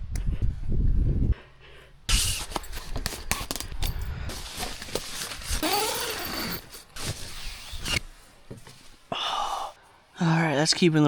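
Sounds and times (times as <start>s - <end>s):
rushing wind: 0.0s - 6.5s
tent fabric snapping and rustling: 2.1s - 9.1s.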